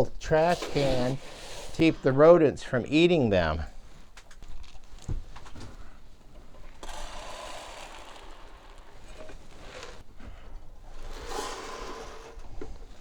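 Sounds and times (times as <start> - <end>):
feed pellets pouring: 6.8 - 10.0.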